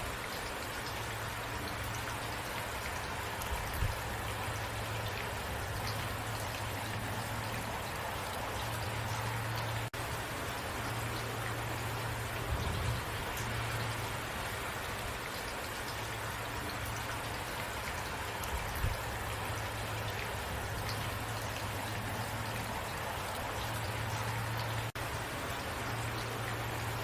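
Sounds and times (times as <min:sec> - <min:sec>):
rain falling: 0:00.0 - 0:27.0.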